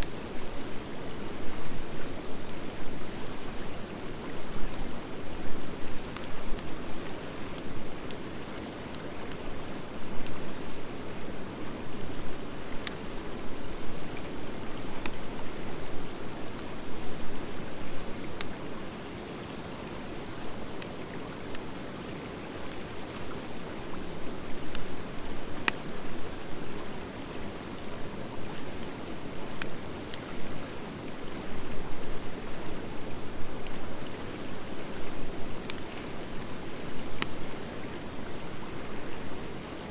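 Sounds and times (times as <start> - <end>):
wood fire hissing: 0.0 - 39.9
fire popping and crackling: 19.8 - 27.1, 31.3 - 39.1.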